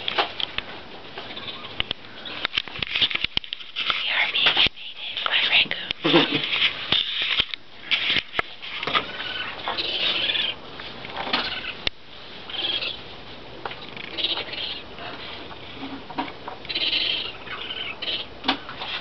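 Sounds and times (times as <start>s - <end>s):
high-pitched animal cries: 9.1s - 10.6s, 12.5s - 13.0s, 14.1s - 14.9s, 16.7s - 18.3s.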